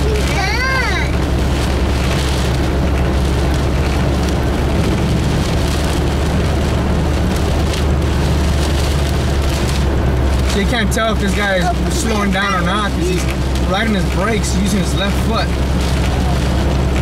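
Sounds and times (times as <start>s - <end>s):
heavy rain on a car: 0.0s - 17.0s
tyres on a flooded road: 0.0s - 17.0s.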